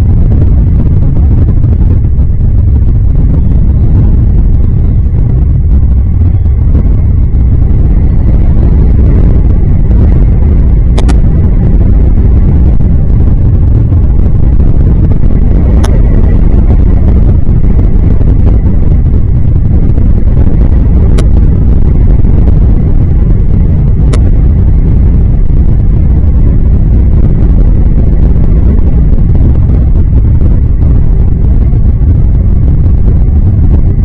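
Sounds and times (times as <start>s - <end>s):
wind buffeting microphone: 0.0s - 34.0s
faint sharp clicks: 11.0s - 11.2s.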